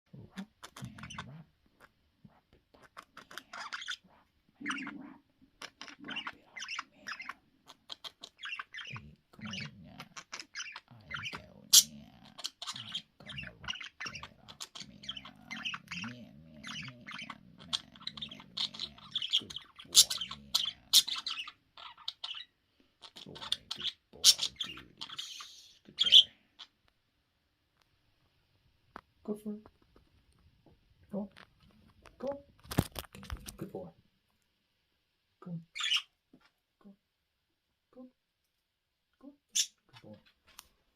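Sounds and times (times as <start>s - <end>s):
budgerigars chattering: 0.4s - 1.9s, 2.8s - 26.7s, 35.8s - 36.1s.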